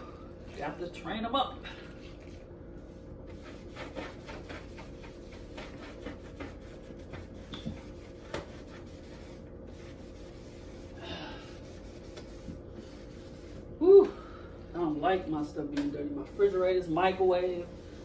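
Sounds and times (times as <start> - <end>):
rag scrubbing refrigerator: 3.2 - 13.7, 16.1 - 18.0.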